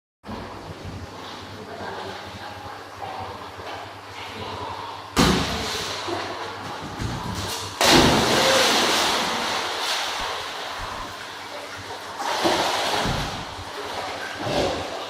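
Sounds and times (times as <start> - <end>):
dog splashing into water: 7.8 - 10.9.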